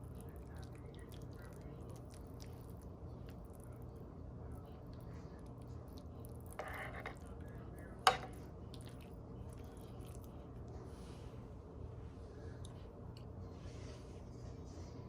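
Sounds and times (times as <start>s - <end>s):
spoon squishing and scraping: 6.4s - 7.4s
spoon clinking against dish: 8.1s - 8.4s.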